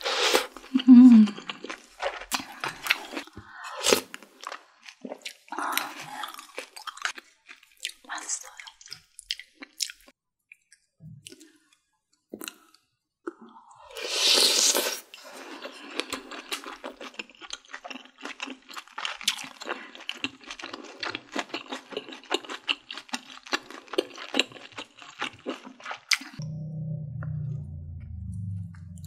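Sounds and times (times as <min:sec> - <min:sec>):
wet chewing and crunching: 0:00.3 - 0:11.6, 0:14.6 - 0:26.4.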